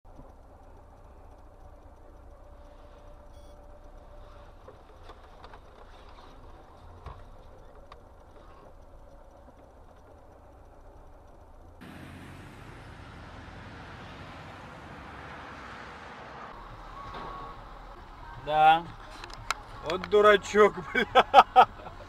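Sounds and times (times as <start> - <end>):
car road and engine noise: 0.0 - 22.0
faint clicks: 0.1 - 11.8, 18.9 - 20.4
hissy road noise: 0.1 - 22.0.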